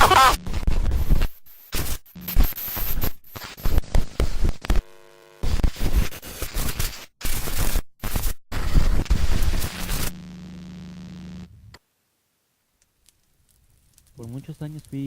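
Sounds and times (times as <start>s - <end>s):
harsh static noise: 0.0s - 12.1s
buzzing electronic tone: 1.4s - 6.2s, 8.0s - 11.5s.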